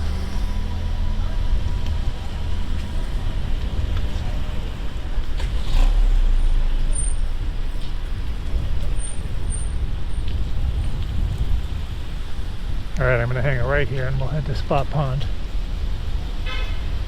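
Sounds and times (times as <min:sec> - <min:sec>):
vehicle passing with hiss: 0:00.0 - 0:12.9
street traffic: 0:00.0 - 0:17.0
wind rumble on microphone: 0:00.0 - 0:17.0.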